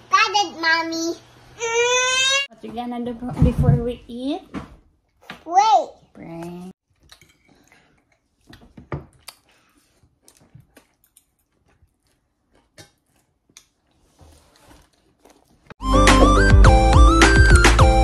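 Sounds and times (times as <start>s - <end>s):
child chewing: 6.8s - 15.8s.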